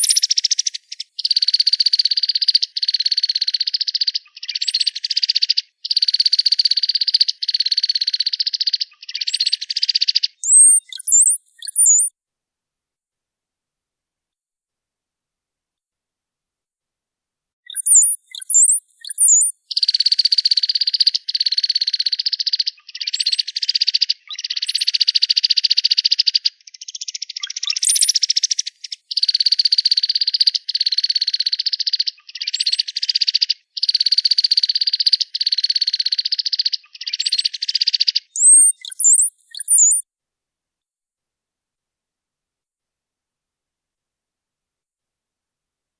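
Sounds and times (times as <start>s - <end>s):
bird high whistled notes: 10.4s - 12.1s, 17.7s - 19.5s, 27.8s - 28.2s, 38.4s - 40.0s
bird rapid buzzy trills: 10.4s - 12.1s, 17.8s - 19.5s, 38.4s - 40.0s.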